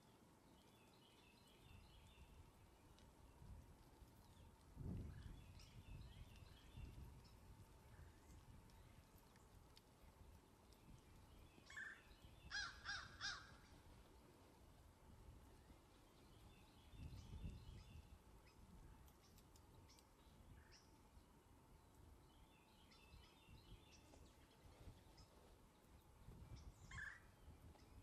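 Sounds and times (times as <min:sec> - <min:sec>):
faint bird chirps: 0:00.0 - 0:14.1, 0:15.4 - 0:21.2, 0:21.8 - 0:28.0
crow cawing: 0:12.5 - 0:13.6.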